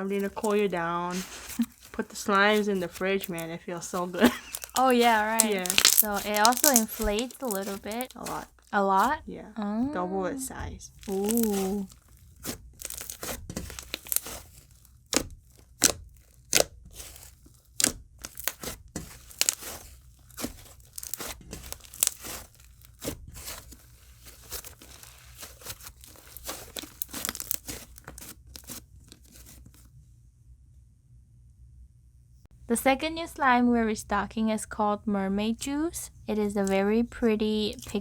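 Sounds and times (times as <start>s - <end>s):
slime crackling and popping: 0.0s - 9.2s, 10.9s - 29.8s, 37.6s - 38.0s.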